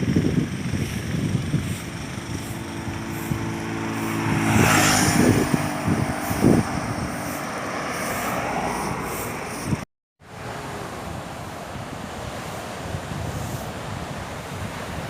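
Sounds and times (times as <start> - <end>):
engine drone: 0.0 - 14.0
wind buffeting microphone: 0.0 - 15.0
sea waves surging onto beach: 1.7 - 15.0.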